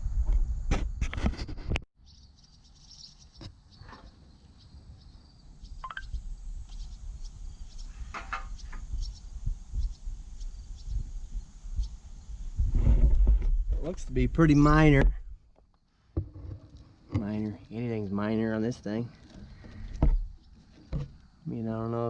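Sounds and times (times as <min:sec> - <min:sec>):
wind rumble on microphone: 0:00.0 - 0:01.8, 0:04.9 - 0:15.4
faint bird chirps: 0:02.0 - 0:12.3.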